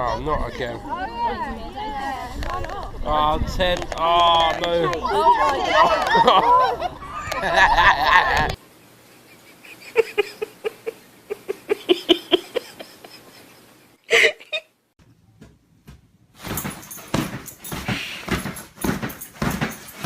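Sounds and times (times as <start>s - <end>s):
scuffling and knocking: 15.4s - 20.0s.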